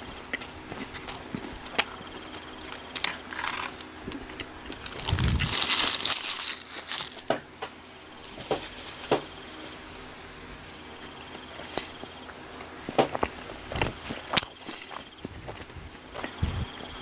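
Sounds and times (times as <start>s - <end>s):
crisp chewing clicks: 0.3s - 7.3s
paper food wrapper crinkling: 0.8s - 7.4s, 8.2s - 9.8s.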